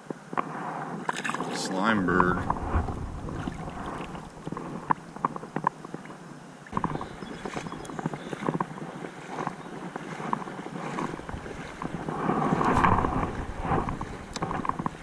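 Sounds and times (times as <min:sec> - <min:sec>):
creek water splashing: 0:00.9 - 0:15.0
wind on microphone: 0:02.0 - 0:06.0, 0:06.8 - 0:15.0.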